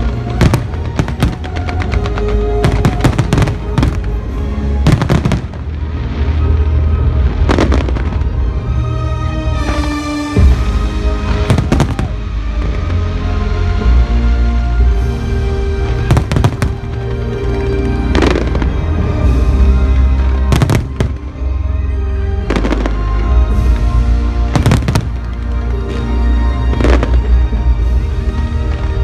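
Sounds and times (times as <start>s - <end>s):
fireworks bangs: 0.0s - 6.4s, 9.6s - 13.0s, 15.9s - 21.6s, 24.6s - 27.3s.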